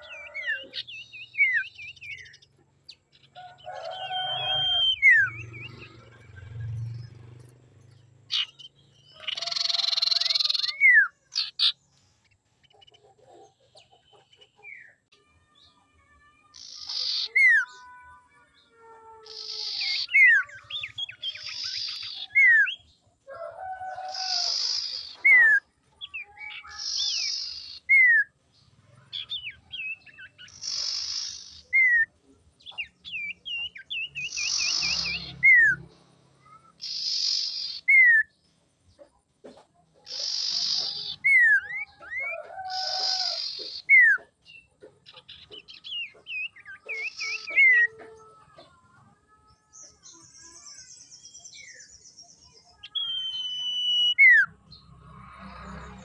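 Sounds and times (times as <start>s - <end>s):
bird calling with rasp and whistle: 0.0s - 2.5s, 3.5s - 6.3s, 8.3s - 11.8s, 16.5s - 18.0s, 19.2s - 22.9s, 24.0s - 28.3s, 29.1s - 35.8s, 36.4s - 38.4s, 40.0s - 48.0s, 52.8s - 54.8s.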